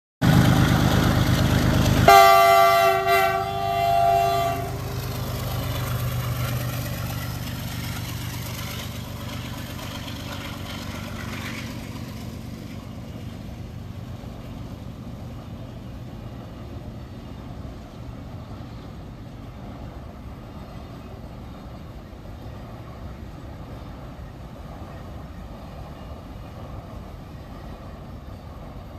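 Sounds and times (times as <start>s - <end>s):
train rumbling past: 0.2s - 28.9s
train horn: 2.0s - 5.3s.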